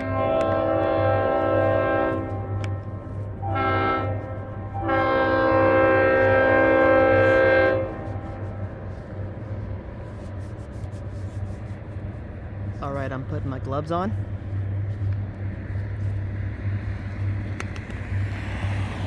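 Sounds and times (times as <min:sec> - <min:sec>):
locomotive air horn blasts: 0:00.0 - 0:09.0
diesel engine humming: 0:00.0 - 0:19.0.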